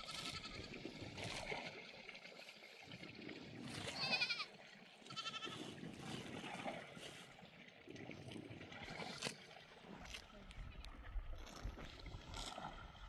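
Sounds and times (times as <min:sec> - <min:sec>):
livestock bleating: 0:00.0 - 0:00.8, 0:03.8 - 0:05.7.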